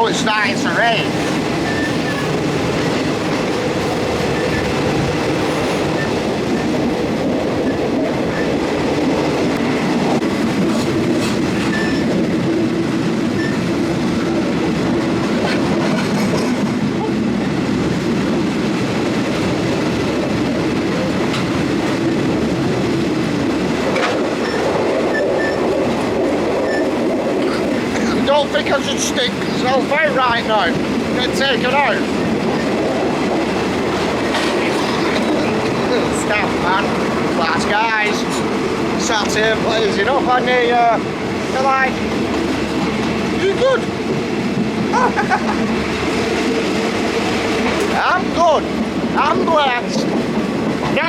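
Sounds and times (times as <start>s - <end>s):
train wheels rumbling on rails: 0.0s - 51.0s
track clicks and knocks: 1.0s - 16.8s, 18.7s - 29.4s, 30.3s - 39.6s.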